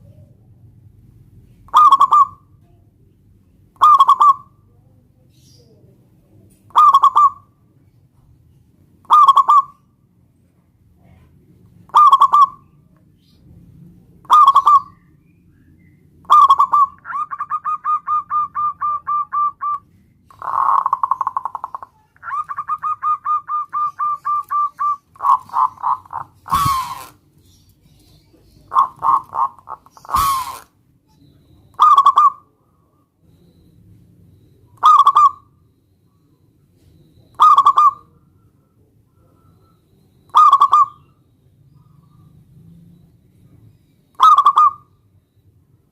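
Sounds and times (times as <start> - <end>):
dove cooing: 1.6 - 2.6, 3.8 - 5.8, 6.7 - 7.6, 9.0 - 9.8, 11.0 - 12.8, 14.2 - 15.1, 16.2 - 33.6, 34.6 - 35.6, 36.2 - 45.0.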